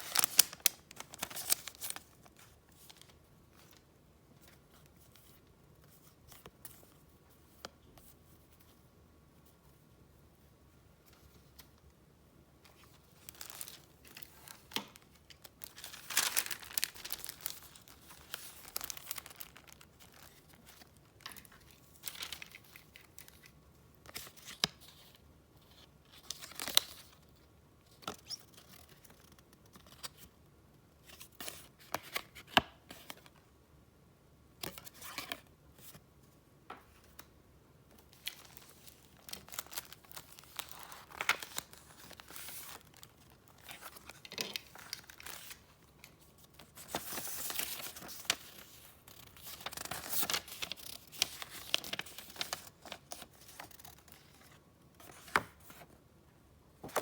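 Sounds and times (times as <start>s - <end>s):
paper rustling and crinkling: 0.0s - 5.4s, 12.6s - 23.5s, 38.0s - 56.0s.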